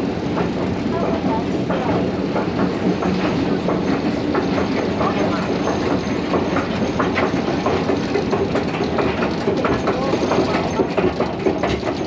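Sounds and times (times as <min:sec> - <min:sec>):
train wheels clattering on rails: 0:00.0 - 0:12.0
voices in background: 0:00.8 - 0:02.6, 0:04.6 - 0:07.1, 0:09.4 - 0:11.6.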